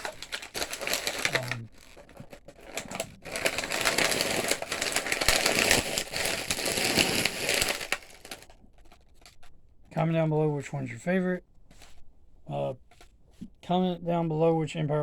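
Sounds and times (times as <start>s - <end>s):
plastic and cardboard crackling: 0.0s - 10.1s, 12.8s - 13.5s.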